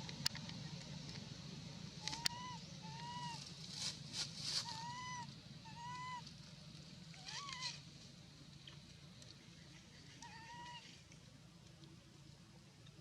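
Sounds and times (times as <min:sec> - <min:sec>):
baby monkey high calls: 0:02.0 - 0:03.4, 0:04.6 - 0:06.3.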